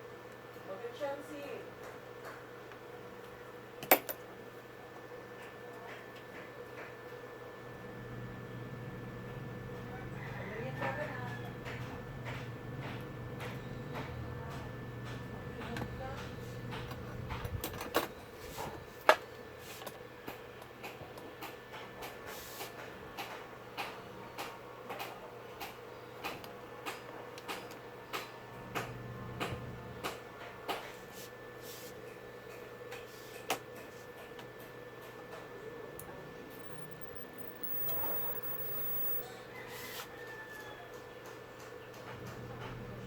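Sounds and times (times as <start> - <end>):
tools clicking and tapping: 3.8 - 4.2
faint hum: 7.5 - 20.1, 23.5 - 39.8.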